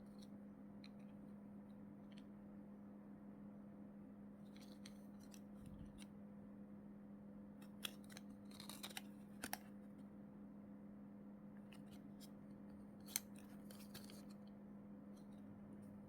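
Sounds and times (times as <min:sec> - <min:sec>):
steady low hum: 0:00.0 - 0:16.0
scissors snipping plastic: 0:07.6 - 0:09.7.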